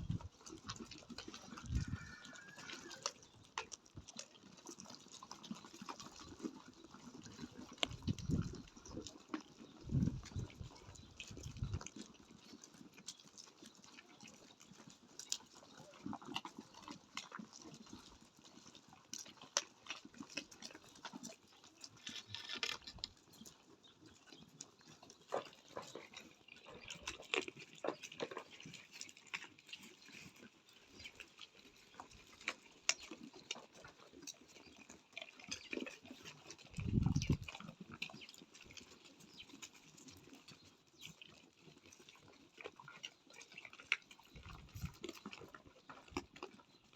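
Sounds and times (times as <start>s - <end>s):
goat hooves clicking and knocking: 0.0s - 46.9s
low rumble on microphone: 36.8s - 37.4s.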